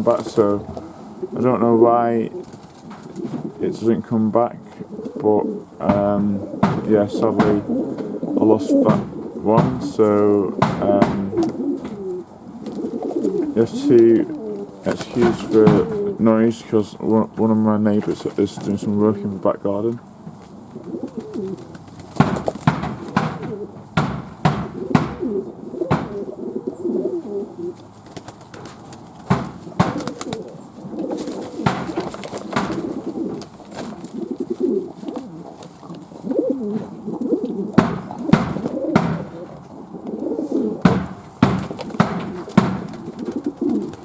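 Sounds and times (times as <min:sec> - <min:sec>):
doves cooing: 0:00.0 - 0:44.0
sharp knocks: 0:05.8 - 0:12.0, 0:14.9 - 0:16.1, 0:22.1 - 0:26.4, 0:28.6 - 0:30.5, 0:31.5 - 0:33.1, 0:37.8 - 0:39.7, 0:40.8 - 0:43.4.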